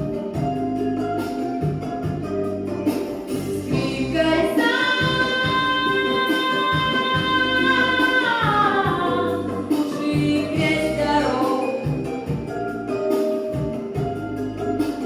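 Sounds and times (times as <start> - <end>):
pop backing track with bass: 0.0 - 15.0
woman singing: 3.6 - 12.1.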